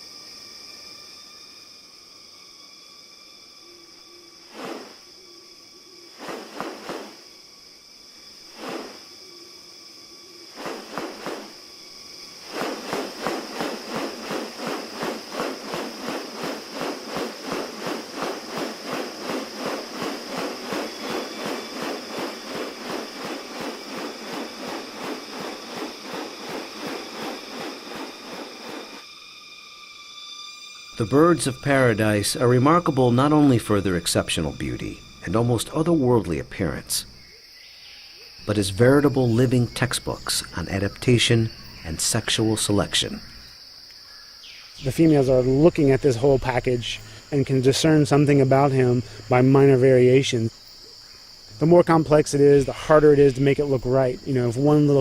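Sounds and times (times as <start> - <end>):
high insect drone: 0.0 - 55.0
repeated pulses: 12.4 - 29.0.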